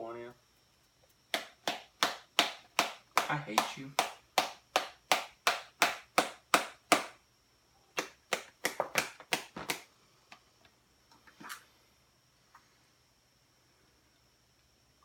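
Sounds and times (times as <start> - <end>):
sharp hand slaps: 1.3 - 7.2, 8.0 - 9.9.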